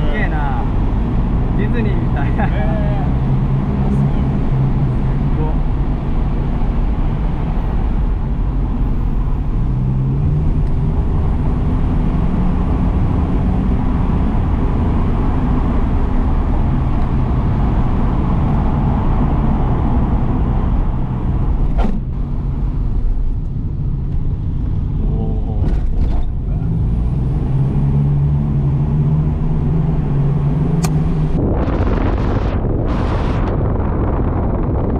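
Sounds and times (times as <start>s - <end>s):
road noise: 0.0s - 34.9s
sharp click: 30.8s - 31.0s.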